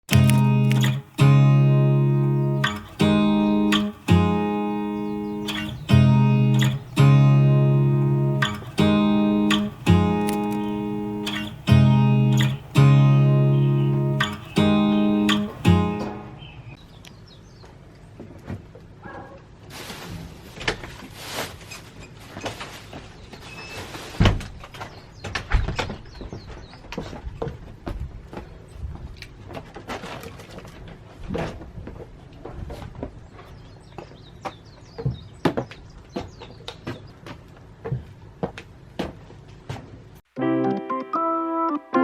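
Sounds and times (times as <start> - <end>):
acoustic guitar chords: 0.0 - 16.7, 40.3 - 42.0.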